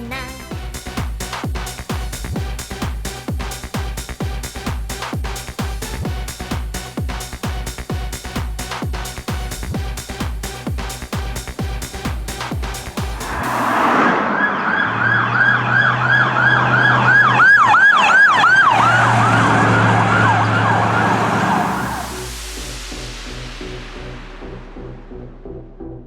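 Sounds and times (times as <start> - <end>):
low hum: 0.0 - 26.0
siren yelping: 13.9 - 22.1.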